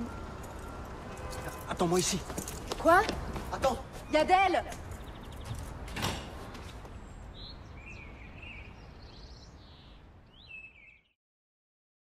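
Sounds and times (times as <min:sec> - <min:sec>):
bird chirps: 0:07.0 - 0:11.2.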